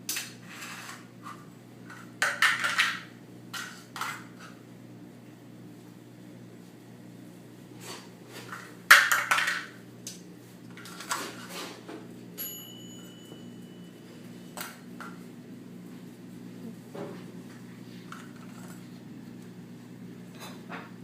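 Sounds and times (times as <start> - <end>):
metallic ping ringing: 12.4 - 14.0.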